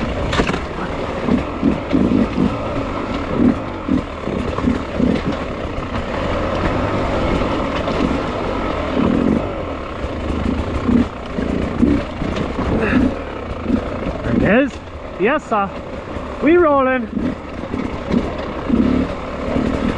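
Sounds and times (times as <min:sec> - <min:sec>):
dirt bike engine revving: 0:00.0 - 0:19.9.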